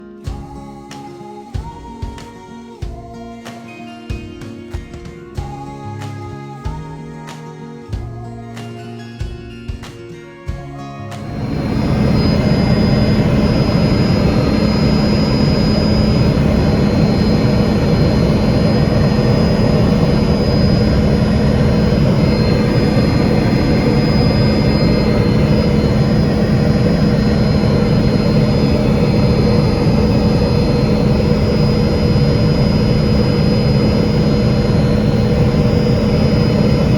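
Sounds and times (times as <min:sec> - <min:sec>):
helicopter turbine and rotor: 0:11.2 - 0:36.9.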